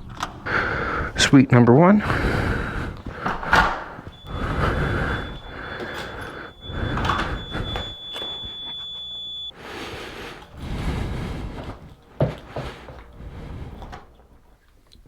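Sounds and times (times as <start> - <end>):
door and handling clatter: 3.0 - 4.5
high-pitched electronic beep: 4.1 - 9.5.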